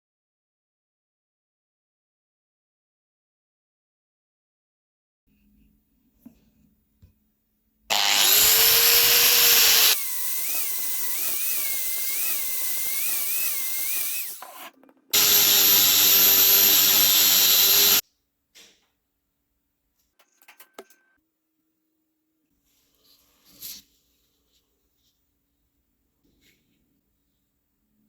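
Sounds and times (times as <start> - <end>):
electric power tool running: 7.9 - 14.4, 15.2 - 18.0.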